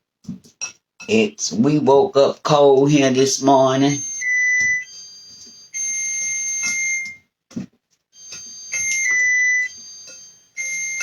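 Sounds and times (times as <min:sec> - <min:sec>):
oven beeping: 0:08.2 - 0:11.0.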